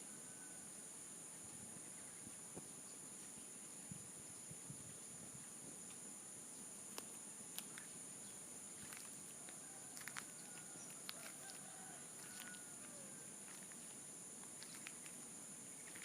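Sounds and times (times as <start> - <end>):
distant rooster crowing: 0.0 - 0.8, 9.4 - 13.6
high-pitched hiss: 0.0 - 16.0.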